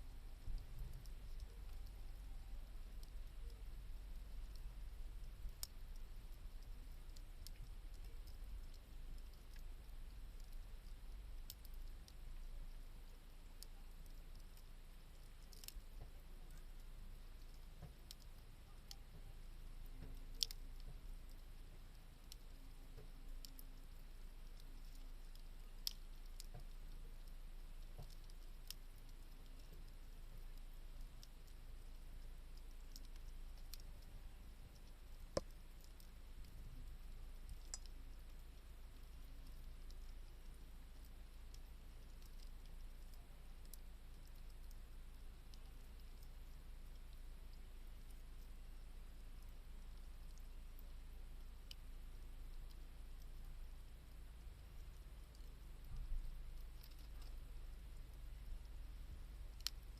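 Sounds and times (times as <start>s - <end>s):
faint low rumble: 0.0s - 59.9s
wood fire crackling: 0.0s - 59.9s
wood fire crackling and popping: 15.4s - 16.7s, 18.9s - 21.4s, 24.4s - 27.4s, 32.8s - 38.0s, 59.5s - 59.9s.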